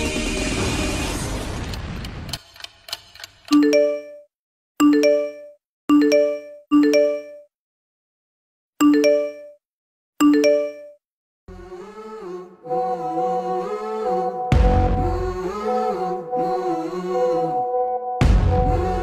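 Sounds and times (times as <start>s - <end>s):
notification ding: 3.5s - 7.5s, 8.8s - 9.6s, 10.2s - 11.0s
person humming music: 11.5s - 19.0s.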